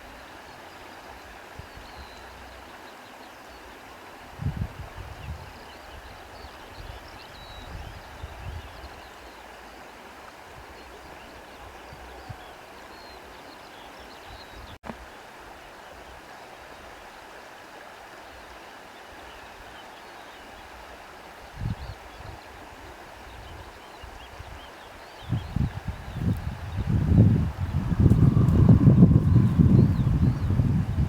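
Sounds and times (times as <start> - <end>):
wind buffeting microphone: 4.4 - 9.0, 23.2 - 31.0.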